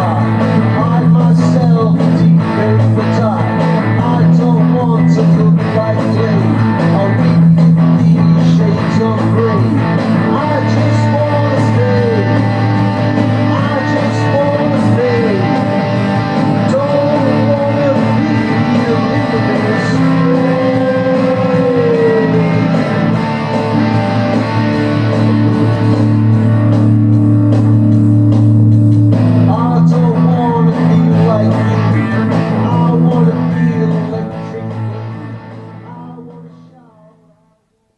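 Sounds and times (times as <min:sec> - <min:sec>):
voice singing in sliding pitches: 0:00.0 - 0:26.6
rock music: 0:00.0 - 0:37.2.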